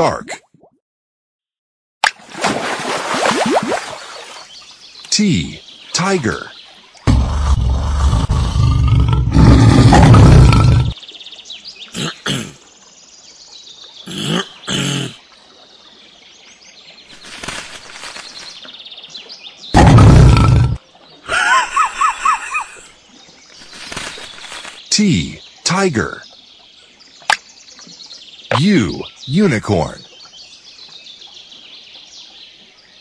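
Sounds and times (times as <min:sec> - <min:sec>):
birds chirping: 0:03.4 - 0:33.0
tiger roaring: 0:07.1 - 0:11.0, 0:19.8 - 0:20.8.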